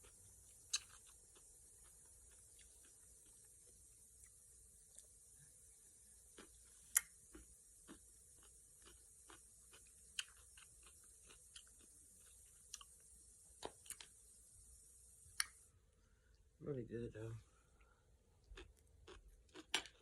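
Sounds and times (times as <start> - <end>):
chewing crunchy food: 0.0 - 14.2, 18.4 - 20.0
faint steady hiss: 0.0 - 20.0.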